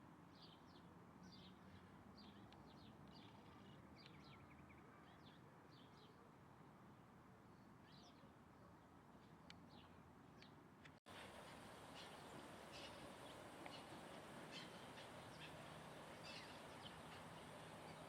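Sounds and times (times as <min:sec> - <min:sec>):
steady background hiss: 0:11.1 - 0:18.0
small bird chirps: 0:11.2 - 0:18.0.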